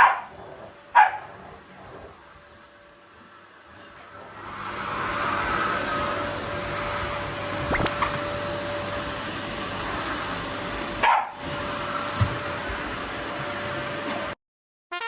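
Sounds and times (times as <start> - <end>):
dog barking: 0.0 - 0.3, 0.9 - 1.3, 11.0 - 11.4
vacuum cleaner running: 0.0 - 14.4.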